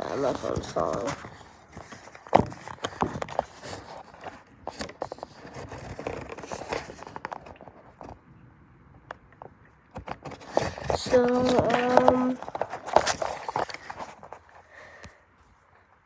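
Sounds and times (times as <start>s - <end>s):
phone handling knocks and scrapes: 0.0s - 8.2s, 9.4s - 14.6s.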